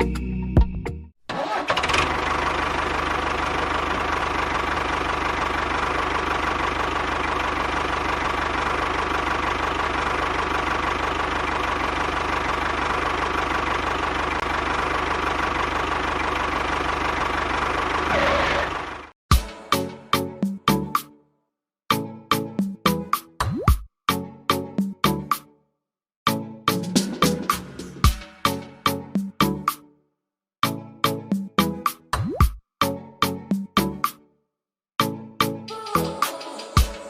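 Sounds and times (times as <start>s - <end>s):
motor running: 3.3s - 19.1s.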